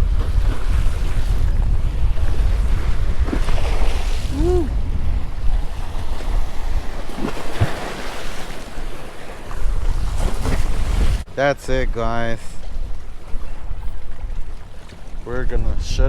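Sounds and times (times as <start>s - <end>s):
waves washing in: 0.0s - 11.4s
wind buffeting microphone: 0.0s - 16.0s.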